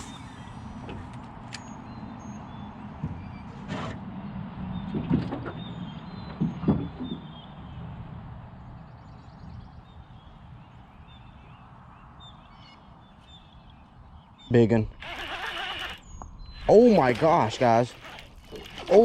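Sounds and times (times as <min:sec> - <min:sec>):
birds chirping: 0:00.0 - 0:03.5, 0:04.1 - 0:19.0.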